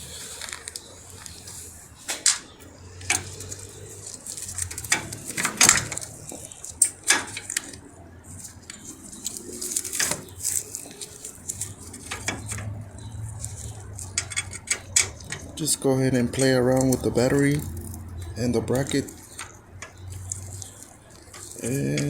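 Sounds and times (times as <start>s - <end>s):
metallic clinks and knocks: 9.8s - 15.6s.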